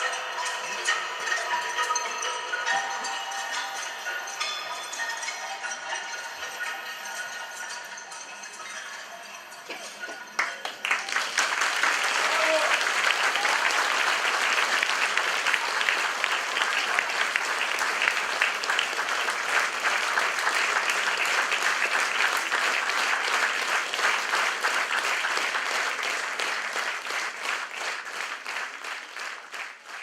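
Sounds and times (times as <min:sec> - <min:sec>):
audience applauding: 0:09.7 - 0:30.0.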